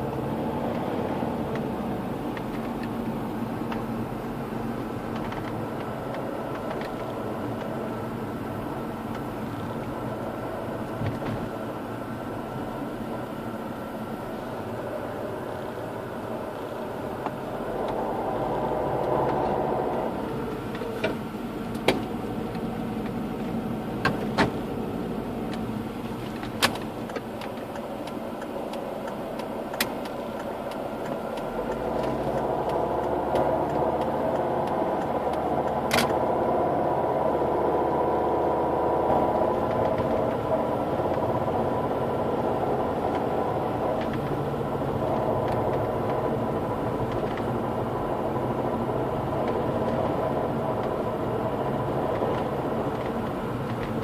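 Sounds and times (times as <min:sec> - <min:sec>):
diesel engine running: 0:00.0 - 0:54.0
sharp irregular clicks: 0:26.4 - 0:36.2.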